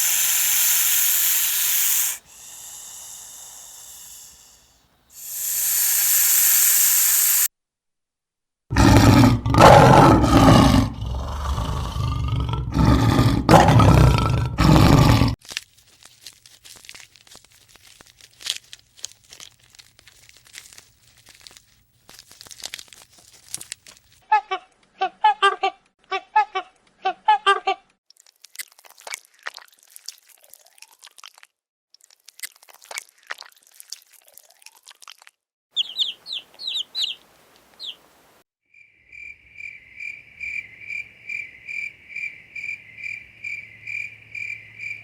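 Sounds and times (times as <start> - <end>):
animal hissing: 0.0 - 7.5
crackling and crunching: 15.4 - 24.2, 28.1 - 35.4.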